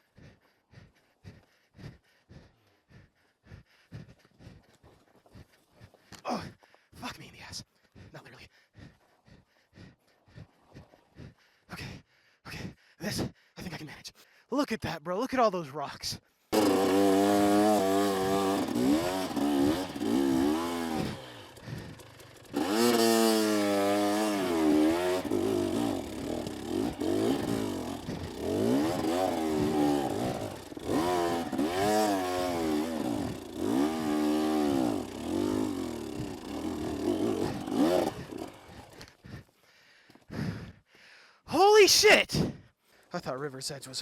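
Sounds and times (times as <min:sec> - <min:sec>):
dirt bike engine revving: 0:16.6 - 0:39.1.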